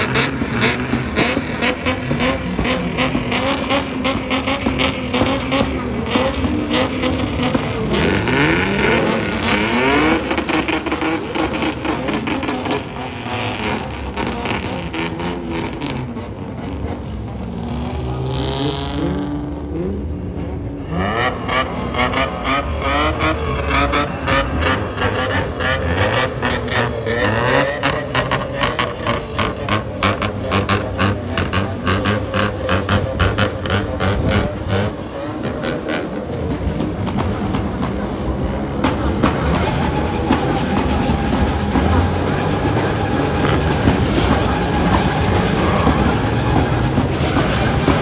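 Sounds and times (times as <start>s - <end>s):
car engine running: 0.0s - 48.0s.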